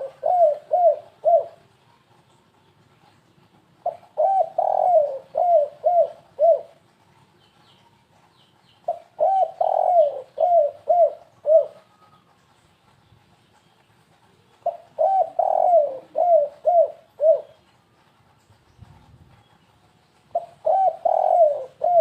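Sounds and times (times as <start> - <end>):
dove cooing: 0.0 - 1.8, 3.8 - 6.9, 8.9 - 12.4, 14.4 - 17.8, 20.3 - 22.0.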